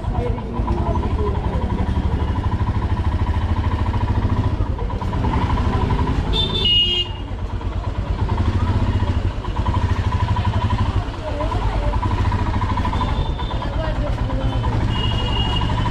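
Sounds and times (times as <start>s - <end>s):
motorcycle engine running: 0.0s - 15.9s
short vehicle horn toot: 6.3s - 7.2s, 14.9s - 15.7s.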